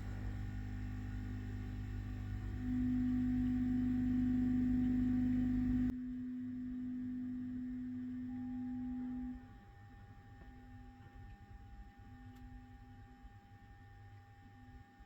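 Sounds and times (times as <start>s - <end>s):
low hum: 0.0s - 9.7s
steady humming tone: 0.0s - 15.0s.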